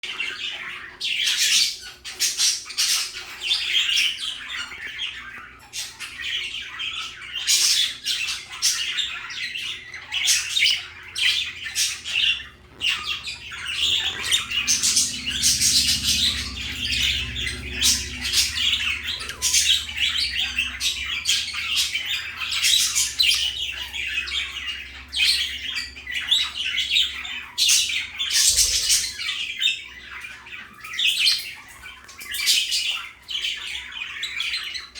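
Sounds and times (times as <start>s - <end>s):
budgerigars chattering: 0.1s - 34.9s
low steady hum: 9.9s - 26.3s.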